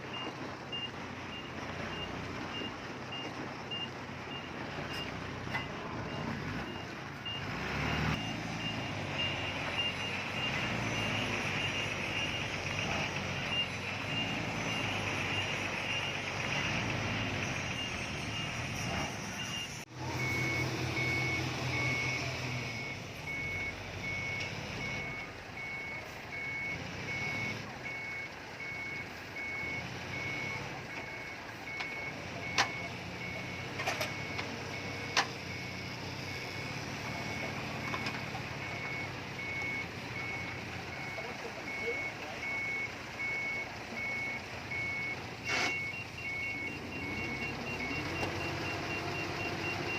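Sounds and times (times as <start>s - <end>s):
diesel engine running: 0.0s - 49.9s
reversing alarm beeping: 0.0s - 49.9s
lower slower reversing beep: 0.1s - 49.9s.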